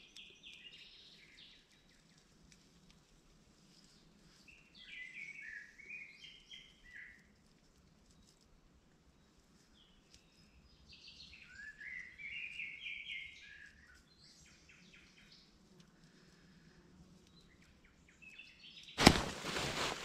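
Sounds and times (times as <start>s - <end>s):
noisy hiss: 19.0s - 20.0s
sudden loud crack: 19.0s - 20.0s.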